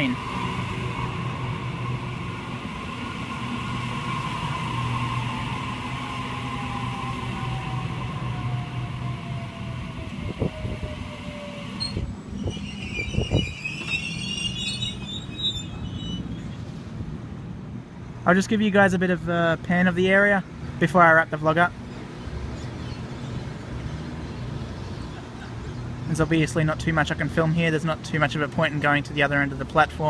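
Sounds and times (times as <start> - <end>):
electric train humming and whining: 0.0 - 18.0.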